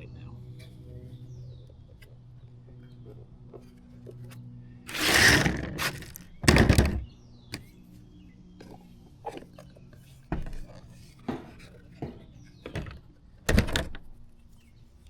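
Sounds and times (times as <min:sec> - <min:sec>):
steady low hum: 0:00.0 - 0:15.0
rustling scrape: 0:04.9 - 0:06.4.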